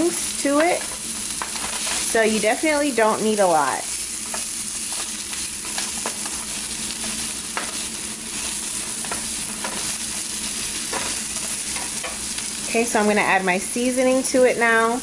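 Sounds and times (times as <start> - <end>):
vegetables sizzling in frying pan: 0.0 - 15.0
spatula scraping and tapping pan: 0.6 - 2.1, 4.2 - 12.5.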